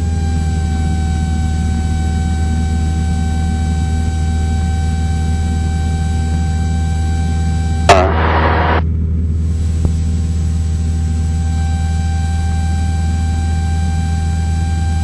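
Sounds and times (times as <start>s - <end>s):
thin steady whine: 0.0s - 14.0s
propeller plane engine droning: 0.0s - 15.0s
brief loud burst: 7.9s - 8.8s.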